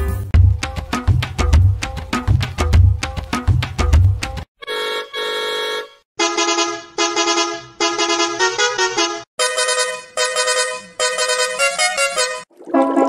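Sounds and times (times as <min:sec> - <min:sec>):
cartoon horn honks: 0:04.6 - 0:12.5
musical horn playing a tune: 0:04.6 - 0:12.5.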